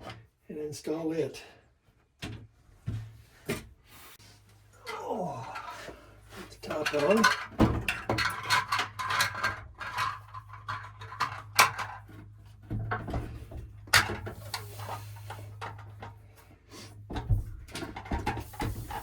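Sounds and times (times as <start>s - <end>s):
plumbing parts clicking and knocking: 4.8s - 19.0s.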